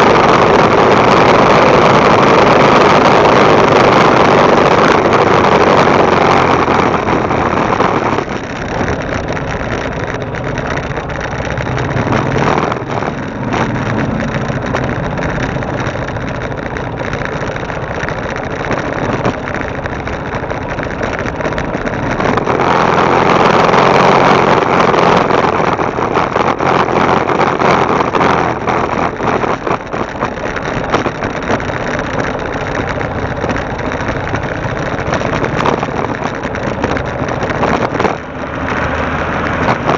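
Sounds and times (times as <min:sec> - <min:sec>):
motorbike engine running: 0:00.0 - 0:39.9
wind noise on microphone: 0:00.0 - 0:39.9.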